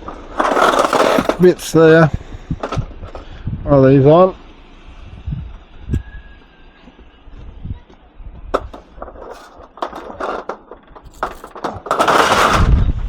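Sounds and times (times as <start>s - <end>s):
scrap crashing clatter: 0.0s - 3.4s, 8.5s - 13.0s
scrap metal clanking: 0.0s - 3.4s, 8.5s - 12.8s.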